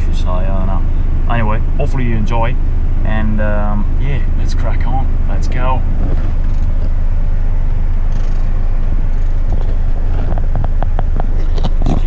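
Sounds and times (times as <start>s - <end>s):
diesel engine rumble: 0.0s - 12.0s.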